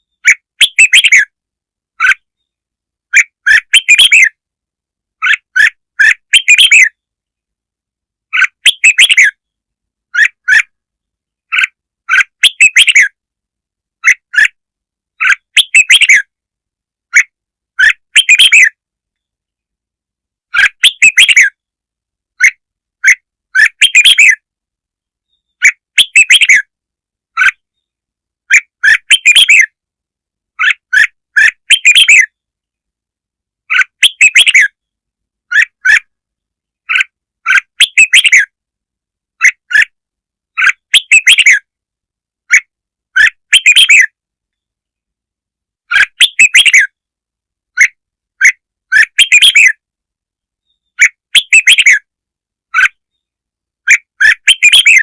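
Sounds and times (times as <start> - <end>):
bird chirping phrases: 0.0 - 1.4, 2.0 - 4.4, 5.2 - 7.2, 8.3 - 13.2, 15.2 - 16.4, 17.1 - 19.6, 20.5 - 21.7, 22.4 - 24.5, 25.2 - 29.8, 30.6 - 32.6, 33.6 - 38.6, 40.5 - 41.7, 42.5 - 44.8, 45.9 - 47.0, 47.7 - 49.8, 50.6 - 52.1, 52.7 - 55.0.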